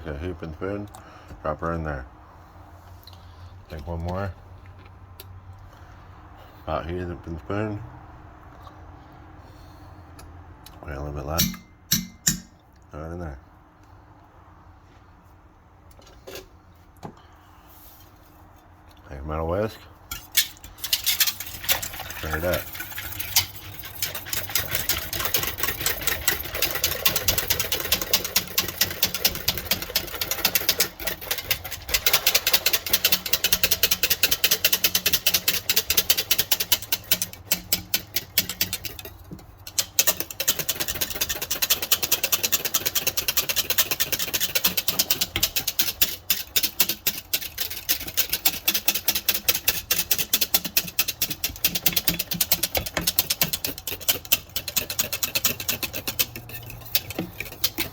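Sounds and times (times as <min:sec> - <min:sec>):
metal whisk clattering in pot: 0:20.1 - 0:57.9.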